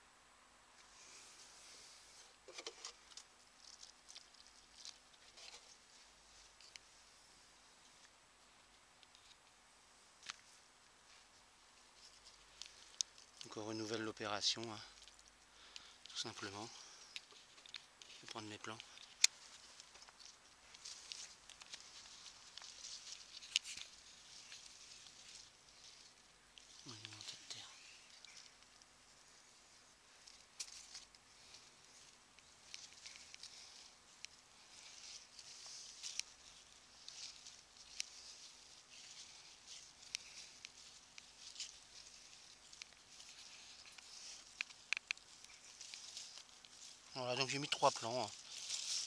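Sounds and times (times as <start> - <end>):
compost rustling and scraping: 10.2 - 49.0.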